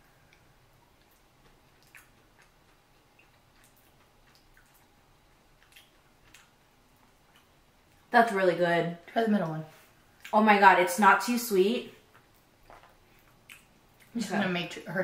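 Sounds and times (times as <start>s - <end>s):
person chewing soft food: 0.0s - 8.1s, 12.0s - 14.2s.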